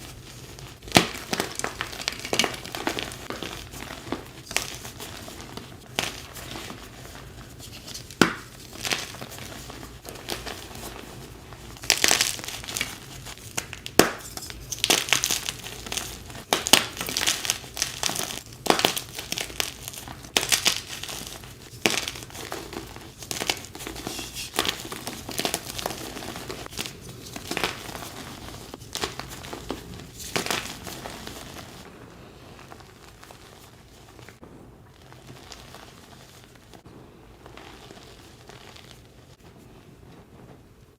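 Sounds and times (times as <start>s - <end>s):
chalk being crushed by hand: 0.0s - 31.9s.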